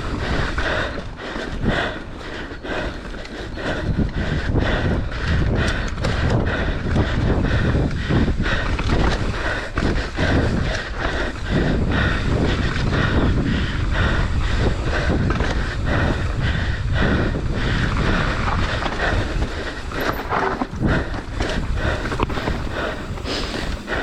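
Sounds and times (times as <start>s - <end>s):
bike rattling over bumps: 0.0s - 24.0s
wind buffeting microphone: 0.0s - 24.0s
tyres over dirt and rock: 18.4s - 24.0s.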